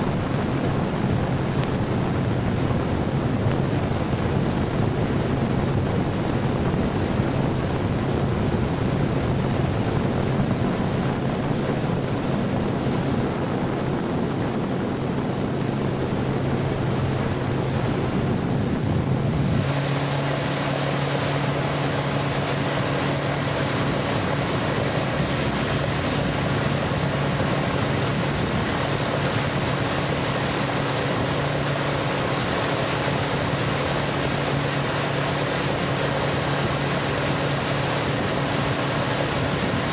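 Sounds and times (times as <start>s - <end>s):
motorboat engine hum: 0.0s - 39.9s
rushing water: 0.0s - 39.9s
wind on microphone: 0.0s - 39.9s
higher steady hum: 8.3s - 39.9s.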